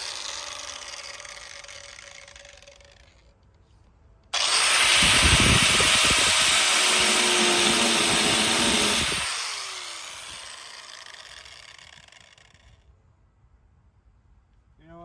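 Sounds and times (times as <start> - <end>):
disc cutter cutting sheet metal: 6.7 - 9.2.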